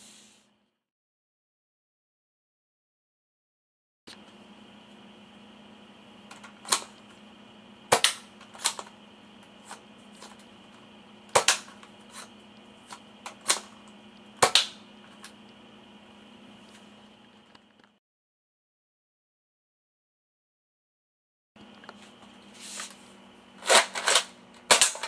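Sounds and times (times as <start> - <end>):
faint steady hum: 4.1 - 18.0, 21.6 - 25.0
toy gun shots popping: 7.9 - 8.3, 14.4 - 14.8.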